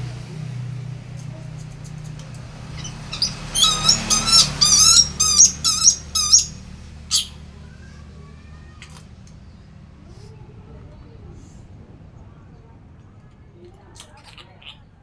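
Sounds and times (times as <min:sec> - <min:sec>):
parrot squawking: 0:02.7 - 0:07.4.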